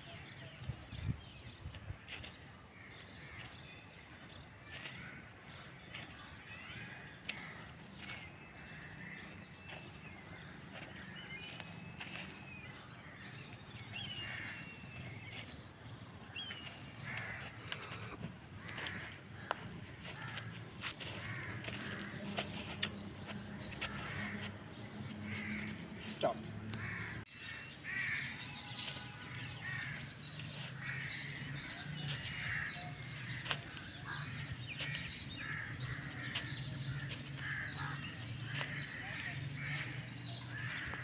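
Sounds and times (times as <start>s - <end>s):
birds calling: 0.0s - 41.0s
harsh caw-like calls: 4.7s - 9.5s, 14.0s - 14.7s, 16.8s - 28.4s, 29.3s - 30.1s, 32.1s - 41.0s.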